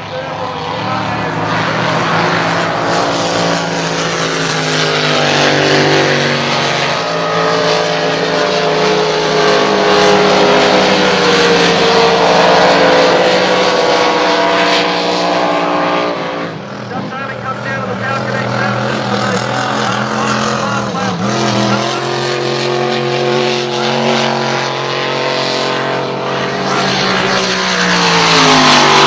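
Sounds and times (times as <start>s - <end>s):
racing engines at high revs: 0.0s - 29.0s.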